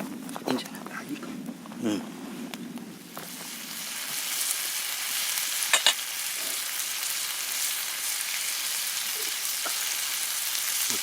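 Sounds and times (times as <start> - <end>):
food sizzling on a grill: 2.9 - 11.0.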